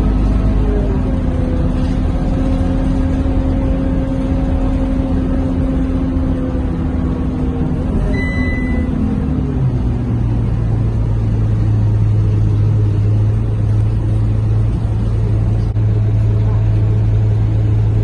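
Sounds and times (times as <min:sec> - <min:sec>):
bus engine and road rumble: 0:00.0 - 0:18.0
drivetrain whine: 0:00.0 - 0:18.0
short high beep: 0:08.1 - 0:08.9.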